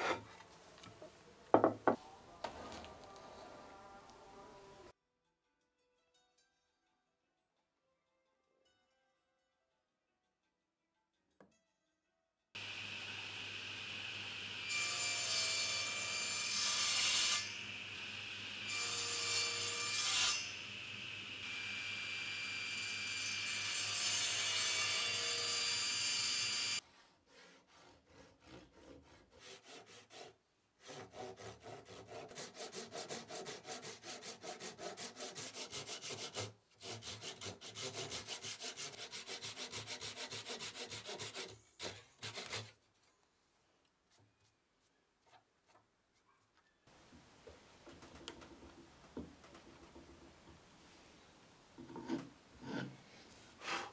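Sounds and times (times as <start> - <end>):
hand saw cutting wood: 0.0 - 0.3, 23.2 - 42.8
table saw cutting wood: 12.6 - 26.8.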